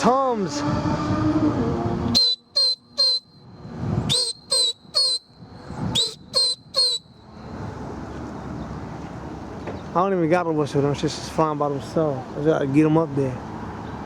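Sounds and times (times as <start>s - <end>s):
person whistling shrill blasts: 2.1s - 3.5s, 4.1s - 7.2s.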